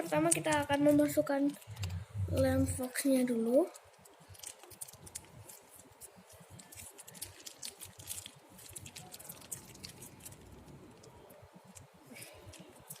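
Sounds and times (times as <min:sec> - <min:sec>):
glue squishing: 0:00.0 - 0:13.0.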